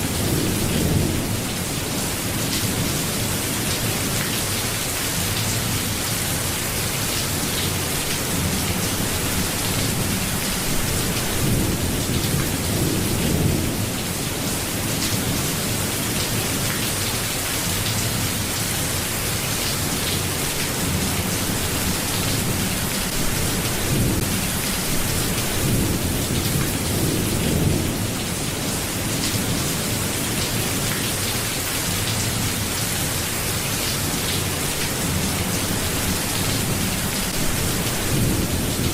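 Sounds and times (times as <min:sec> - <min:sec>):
rain hissing: 0:17.2 - 0:29.9.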